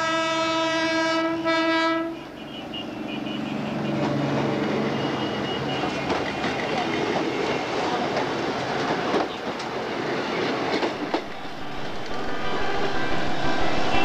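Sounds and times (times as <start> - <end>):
wheels clacking over rail joints: 5.8 - 11.4
train wheels rumbling: 5.8 - 14.0.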